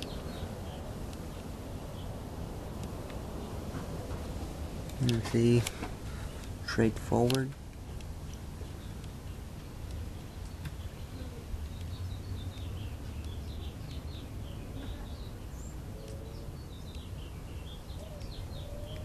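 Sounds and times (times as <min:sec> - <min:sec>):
low outdoor rumble: 0:00.0 - 0:19.0
small birds chirping: 0:00.0 - 0:19.0.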